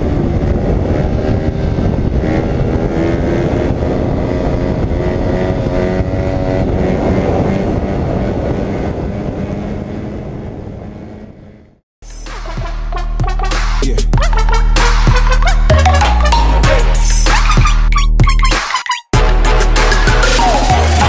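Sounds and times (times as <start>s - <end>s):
dirt bike engine running: 0.0s - 11.3s
music with heavy bass: 12.0s - 21.0s.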